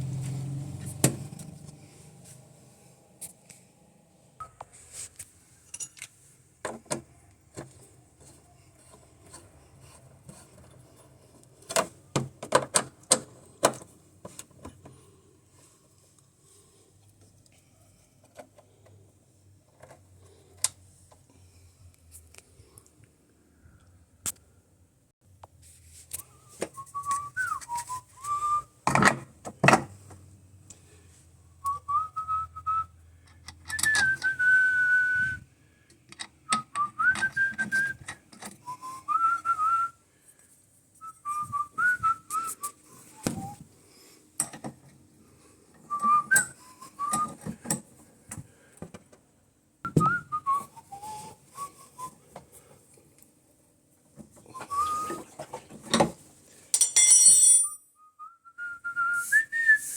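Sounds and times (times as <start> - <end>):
handling clicks and knocks: 11.6 - 15.0
person whistling a tune: 26.5 - 28.8, 31.6 - 32.9, 33.7 - 35.4, 36.5 - 38.0, 38.6 - 40.0, 41.0 - 43.6, 45.9 - 47.4, 49.9 - 52.2, 54.5 - 55.3, 57.8 - 59.9.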